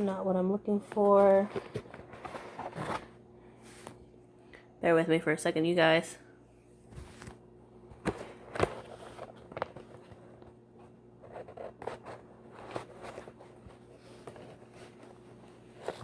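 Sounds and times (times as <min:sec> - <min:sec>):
faint steady hum: 0:00.0 - 0:16.0
papers rustling and crinkling: 0:00.8 - 0:04.0, 0:06.9 - 0:16.0.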